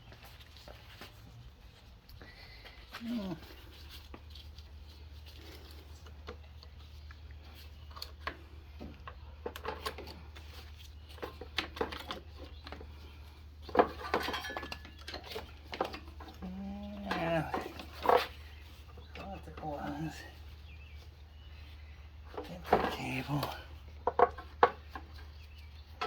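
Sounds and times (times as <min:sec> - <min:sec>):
metal tools clinking: 0:13.8 - 0:18.3.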